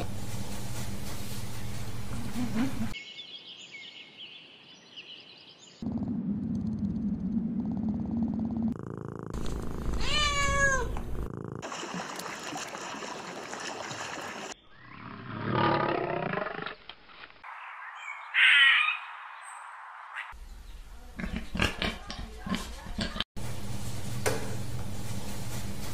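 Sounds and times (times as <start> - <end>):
lion growling: 5.8 - 10.0, 15.3 - 16.8
cat meowing: 10.0 - 11.1.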